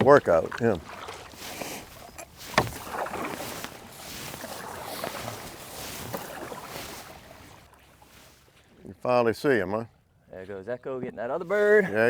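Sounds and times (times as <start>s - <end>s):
water sloshing and splashing: 0.0s - 8.8s.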